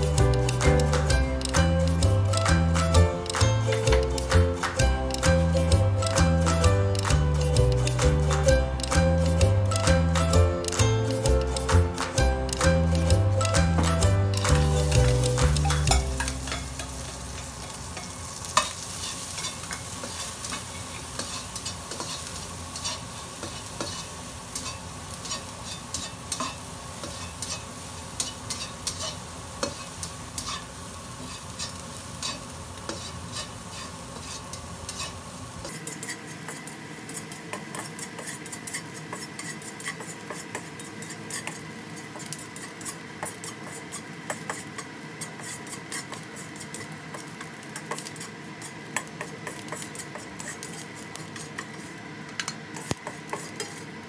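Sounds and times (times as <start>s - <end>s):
oil sizzling in wok: 0.0s - 54.0s
spatula tapping and scraping pan: 11.6s - 53.8s.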